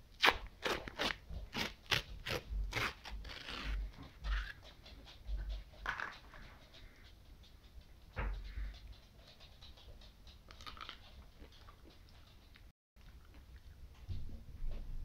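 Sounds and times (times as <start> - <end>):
crunching and chewing: 10.4 - 13.7.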